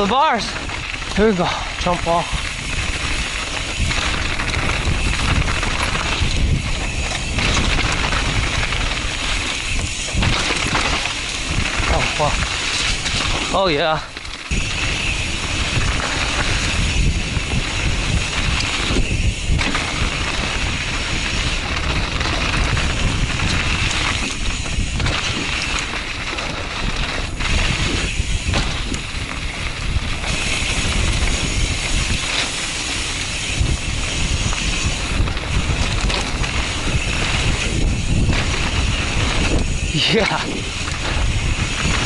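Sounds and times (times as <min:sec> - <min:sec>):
bike tyres on dirt trail: 0:00.0 - 0:42.0
wind rush on microphone: 0:00.0 - 0:42.0.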